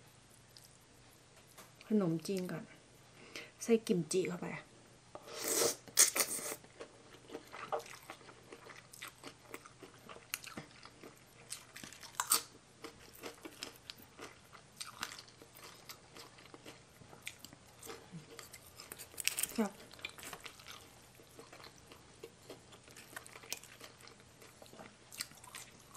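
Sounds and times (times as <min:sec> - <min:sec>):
mouth chewing: 0:05.4 - 0:25.9.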